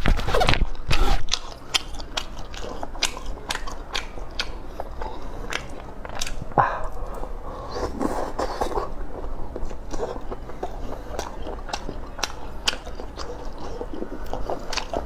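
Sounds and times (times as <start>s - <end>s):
chewing clicks: 0.9s - 7.2s, 9.5s - 15.0s.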